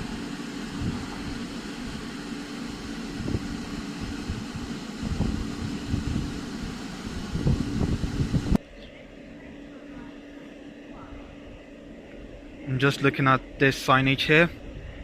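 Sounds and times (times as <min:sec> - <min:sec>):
electric train humming: 0:00.0 - 0:15.0.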